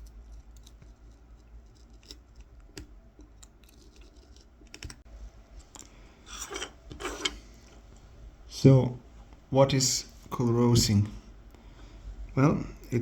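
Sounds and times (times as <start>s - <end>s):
knife scraping wood: 6.3s - 7.4s.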